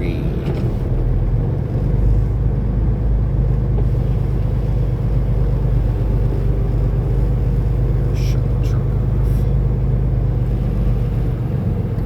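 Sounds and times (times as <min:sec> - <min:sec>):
truck diesel engine droning: 0:00.0 - 0:12.0.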